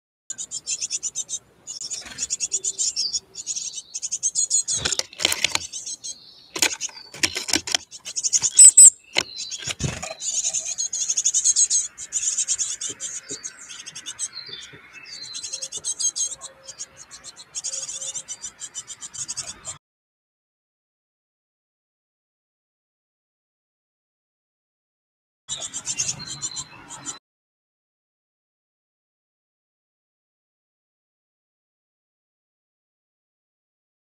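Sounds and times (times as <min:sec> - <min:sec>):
chickadees chirping: 0:00.3 - 0:19.8, 0:25.5 - 0:27.2.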